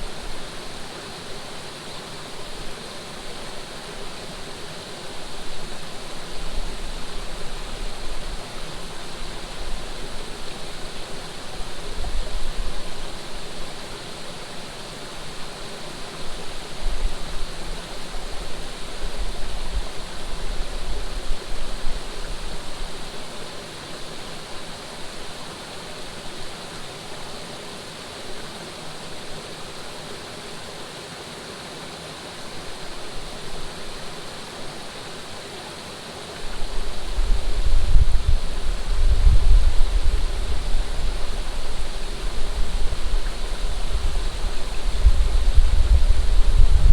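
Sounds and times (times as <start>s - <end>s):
flowing water: 0.0s - 46.9s
wind buffeting microphone: 36.6s - 46.9s.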